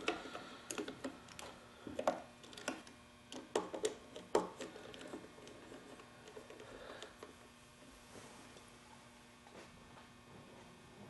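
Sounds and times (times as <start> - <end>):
tool clicking and tapping on metal: 0.0 - 7.2.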